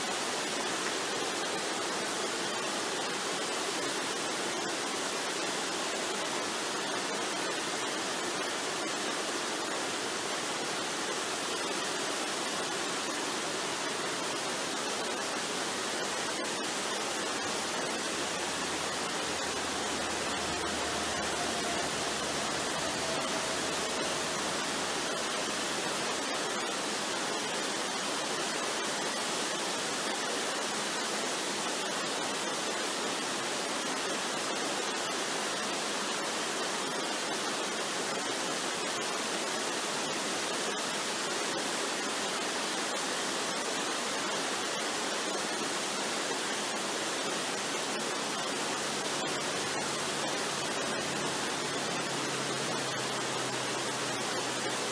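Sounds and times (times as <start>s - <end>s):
waterfall rushing: 0.0s - 54.9s
faint falling tone: 17.3s - 26.1s.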